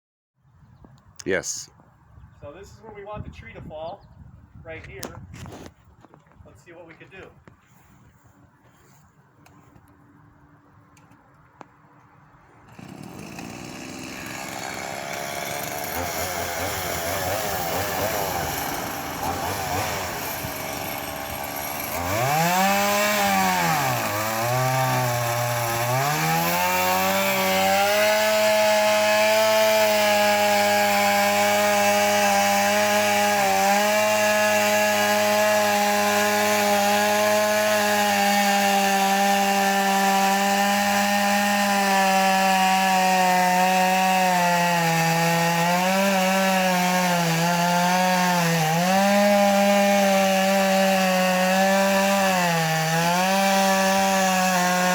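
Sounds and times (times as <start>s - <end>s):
chainsaw revving and cutting: 12.6s - 54.9s.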